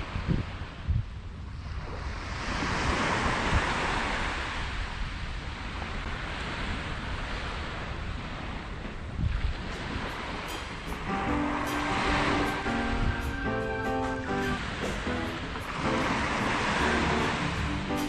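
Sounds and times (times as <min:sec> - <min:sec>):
wind buffeting microphone: 0:00.0 - 0:13.5
surf breaking on sand: 0:05.6 - 0:18.0.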